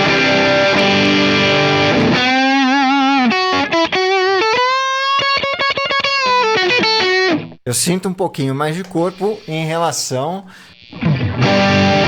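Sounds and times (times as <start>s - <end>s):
distorted electric guitar: 10.2s - 12.0s.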